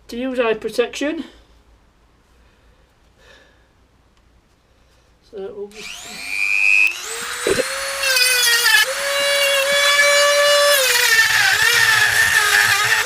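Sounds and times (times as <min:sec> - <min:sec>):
rotary tool cutting steel: 0:05.8 - 0:13.0.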